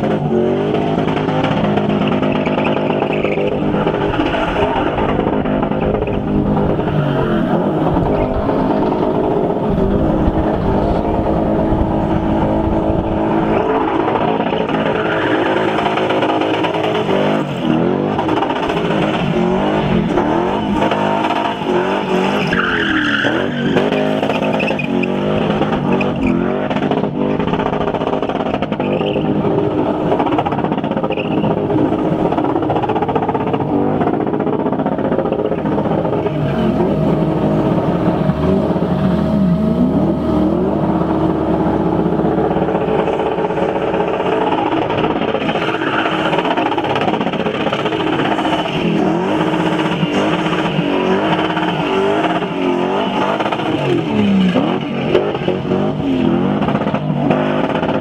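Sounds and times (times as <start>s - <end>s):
car engine revving hard: 0.0s - 58.0s
tyres spinning: 41.3s - 58.0s.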